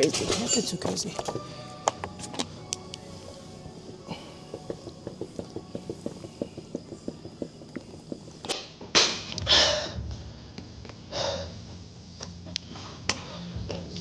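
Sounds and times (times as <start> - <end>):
faint music beat: 0.0 - 8.6.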